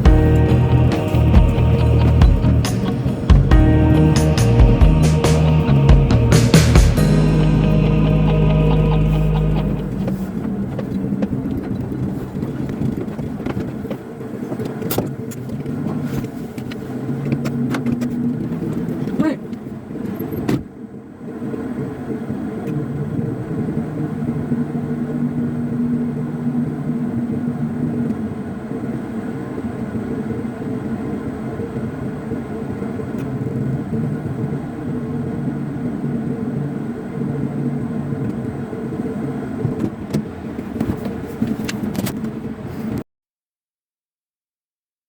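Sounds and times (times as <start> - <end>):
vehicle engine hum: 0.0 - 14.0
road noise: 0.0 - 20.1.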